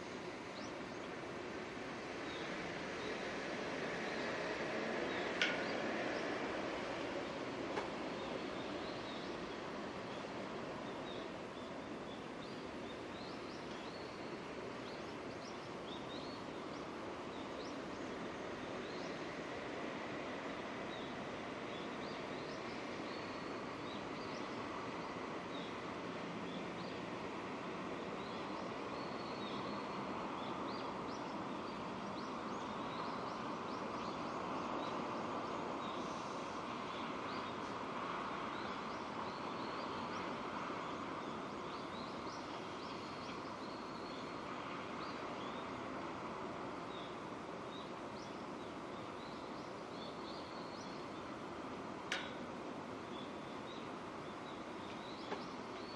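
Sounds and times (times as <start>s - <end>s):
steady rain falling: 0.1s - 15.5s
small birds chirping: 46.8s - 55.9s.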